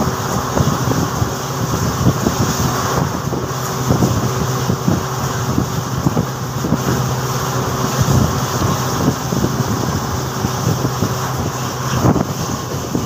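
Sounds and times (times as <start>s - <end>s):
train coach rumbling hum: 0.0s - 13.0s
wind buffeting microphone: 0.0s - 13.0s.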